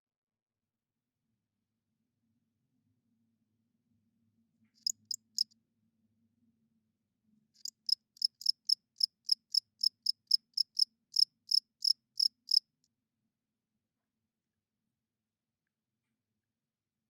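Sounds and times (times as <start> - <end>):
cricket chirping: 4.8 - 5.5, 7.6 - 12.8.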